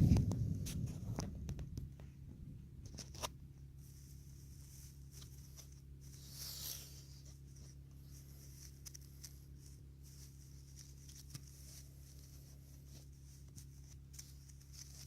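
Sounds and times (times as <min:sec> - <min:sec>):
hands rustling in potting soil: 0:00.0 - 0:15.0
steady low hum: 0:00.0 - 0:15.0
scrape on plant pot: 0:04.0 - 0:15.0.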